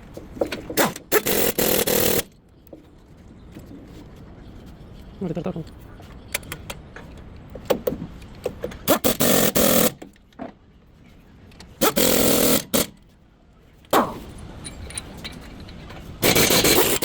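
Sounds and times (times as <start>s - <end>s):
pneumatic impact wrench: 0.7s - 2.3s, 8.8s - 10.0s, 11.8s - 13.0s, 16.2s - 17.0s
metallic clicks of tools handled: 14.6s - 16.0s.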